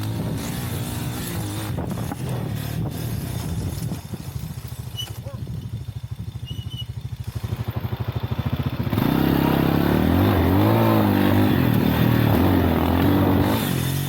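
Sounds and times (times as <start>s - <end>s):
wind on microphone: 0.0s - 6.7s
motorcycle engine accelerating: 0.0s - 14.0s.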